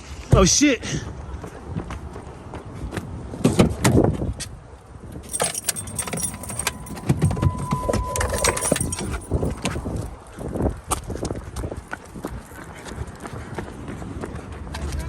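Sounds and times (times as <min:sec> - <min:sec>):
rapid metallic jingling: 0:05.2 - 0:10.0
thin steady tone: 0:05.3 - 0:09.9.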